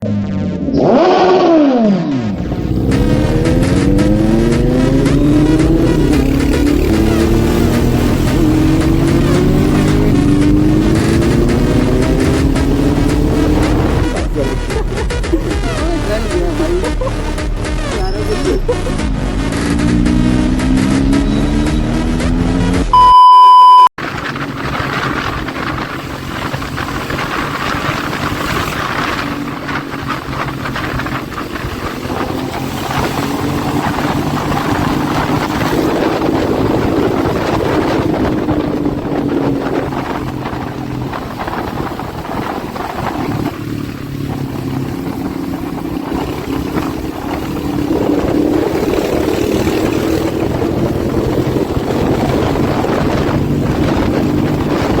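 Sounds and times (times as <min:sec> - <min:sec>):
motorcycle engine revving: 0:00.0 - 0:23.0, 0:23.7 - 0:55.0
loud beep tone: 0:17.7 - 0:24.0.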